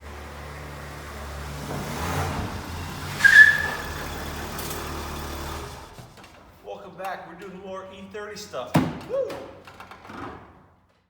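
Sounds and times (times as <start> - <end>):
car engine running: 0.0 - 6.5
short high squeal: 3.1 - 4.7.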